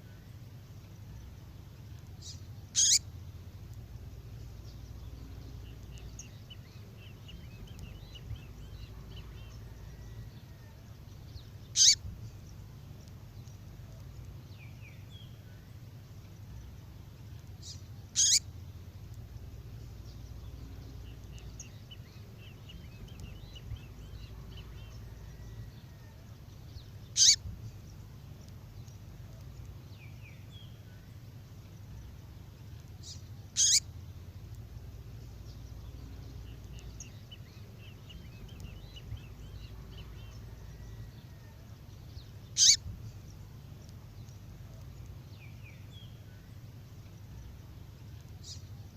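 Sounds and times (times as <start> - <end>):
faint bird chirps and trill: 0.0 - 48.9
low hum: 0.0 - 48.9
sharp high bird call notes: 2.8 - 3.0, 11.8 - 12.0, 18.2 - 18.4, 27.2 - 27.4, 33.6 - 33.8, 42.6 - 42.8.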